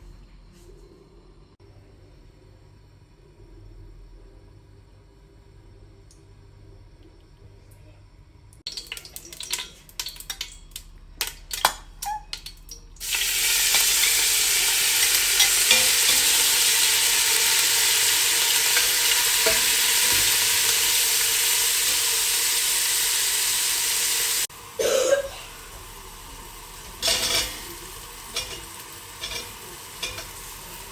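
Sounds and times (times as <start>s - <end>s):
food sizzling in hot oil: 8.7s - 30.9s
kitchen clicks and knocks: 8.9s - 12.6s.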